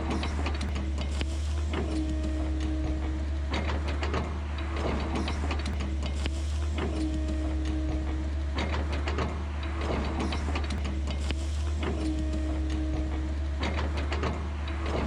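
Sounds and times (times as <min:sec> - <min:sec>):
machinery low hum: 0:00.0 - 0:15.0
held machine tone: 0:06.8 - 0:09.0, 0:11.9 - 0:14.1.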